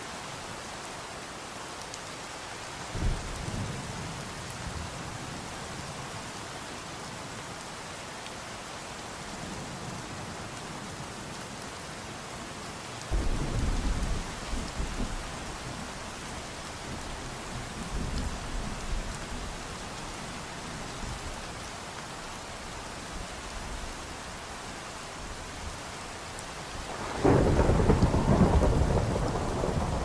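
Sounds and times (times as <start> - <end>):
rain falling: 0.0 - 30.0
thunder rumbling: 26.9 - 30.0.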